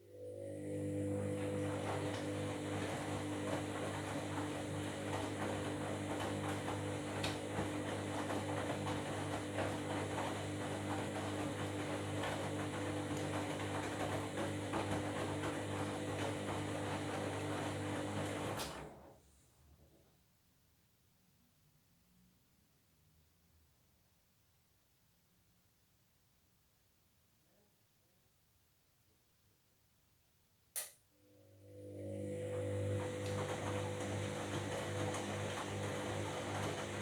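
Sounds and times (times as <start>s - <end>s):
washing machine running: 0.1s - 19.2s, 31.5s - 37.0s.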